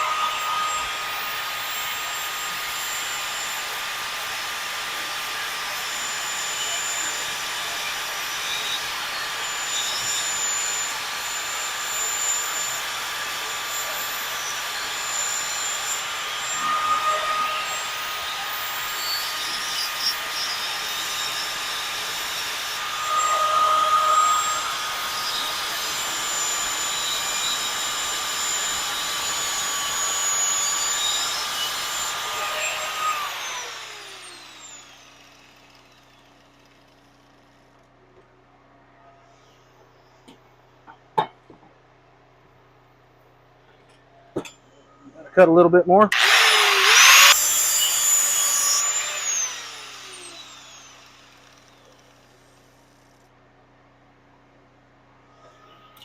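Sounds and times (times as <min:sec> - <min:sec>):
cut-off grinder cutting steel: 0:00.0 - 0:37.6, 0:46.1 - 0:52.4.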